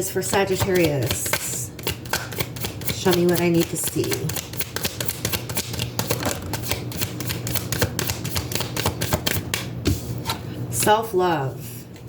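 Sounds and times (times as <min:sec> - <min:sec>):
cards being shuffled: 0:00.6 - 0:09.7.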